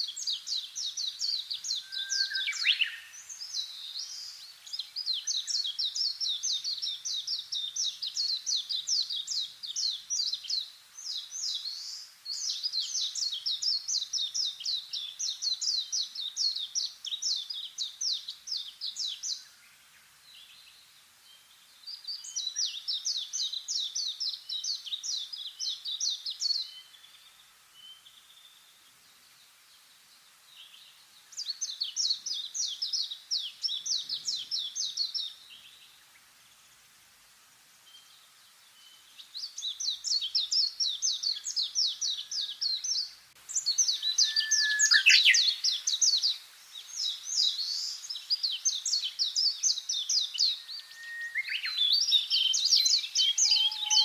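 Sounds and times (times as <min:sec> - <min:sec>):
songbird trilling: 0:01.0 - 0:03.1, 0:39.6 - 0:54.0.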